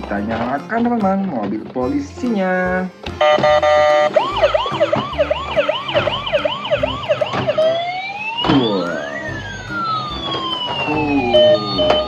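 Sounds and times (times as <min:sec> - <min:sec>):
toy electronic siren: 0:03.2 - 0:12.0.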